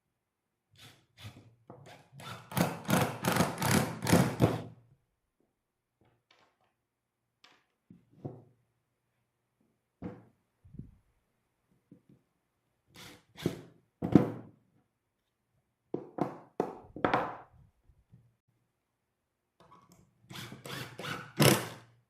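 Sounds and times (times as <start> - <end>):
wooden thunks and knocks: 10.0 - 10.3, 14.0 - 14.5, 15.9 - 17.5.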